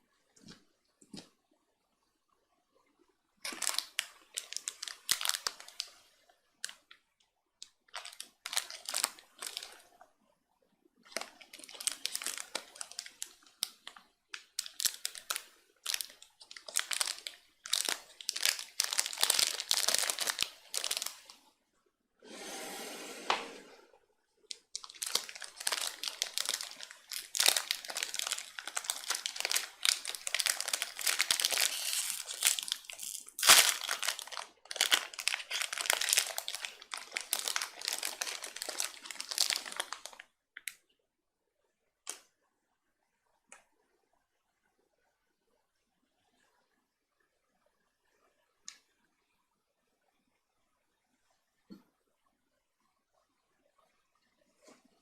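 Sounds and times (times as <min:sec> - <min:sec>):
crinkly wrapper crackling: 0:03.4 - 0:07.0, 0:07.6 - 0:10.0, 0:11.0 - 0:21.4, 0:24.5 - 0:40.8
smooth wrapper rustle: 0:03.4 - 0:07.0, 0:07.6 - 0:10.0, 0:11.0 - 0:21.5, 0:24.5 - 0:40.3.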